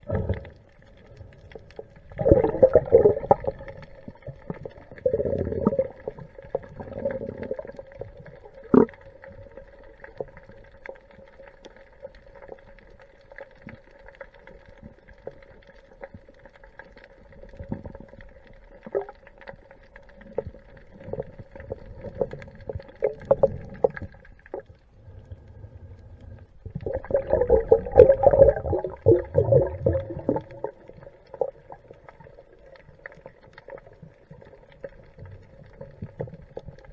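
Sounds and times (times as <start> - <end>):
steady underwater hum: 0.0 - 36.9
underwater bubbling and rushing water: 0.0 - 36.9.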